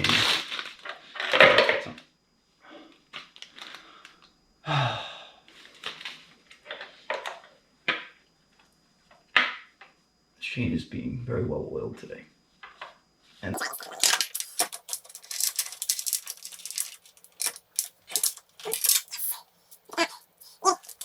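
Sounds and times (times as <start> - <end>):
plastic bag rustling: 0.0 - 1.0, 13.6 - 19.4
chain clicking and knocking: 14.0 - 20.0.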